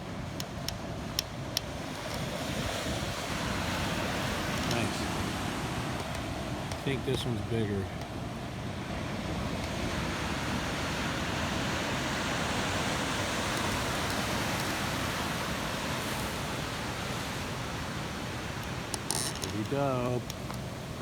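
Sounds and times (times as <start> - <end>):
ocean surf breaking: 1.0 - 21.0.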